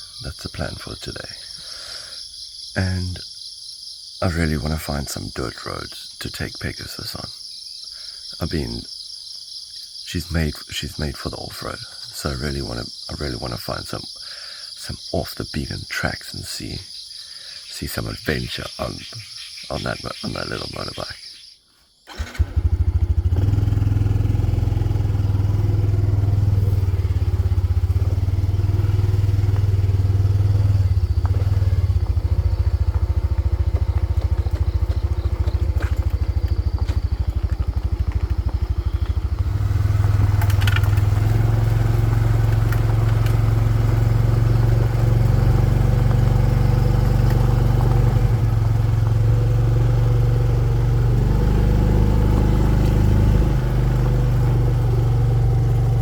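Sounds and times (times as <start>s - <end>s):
motorbike engine droning: 22.1s - 56.0s.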